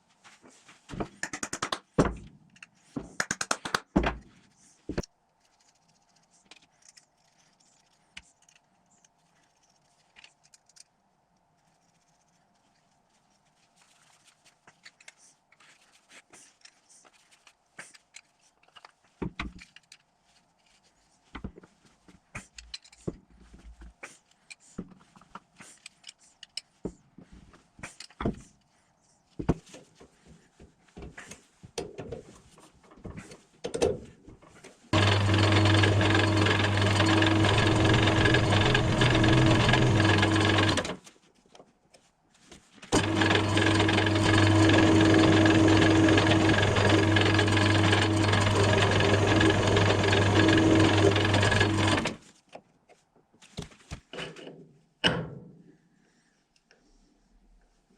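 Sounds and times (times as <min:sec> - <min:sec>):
electric power tool running: 0:35.0 - 0:41.0, 0:43.0 - 0:52.2.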